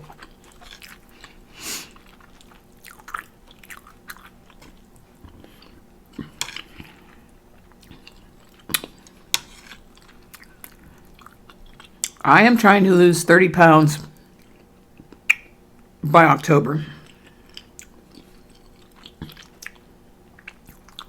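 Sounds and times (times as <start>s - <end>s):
person chewing food: 0.0s - 12.2s, 14.2s - 15.6s, 17.0s - 21.0s
wet mouth clicks and smacks: 15.2s - 15.5s.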